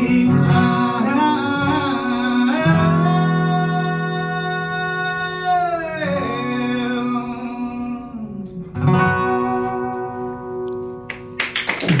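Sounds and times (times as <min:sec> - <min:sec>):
acoustic guitar chords: 0:00.0 - 0:11.4
people clapping: 0:11.0 - 0:12.0.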